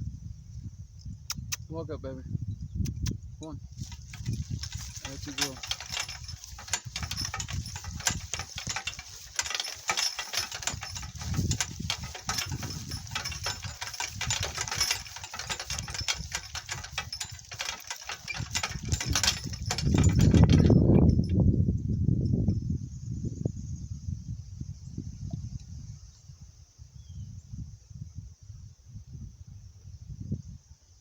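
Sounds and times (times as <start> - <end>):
cart rattling over rough ground: 3.8 - 21.4.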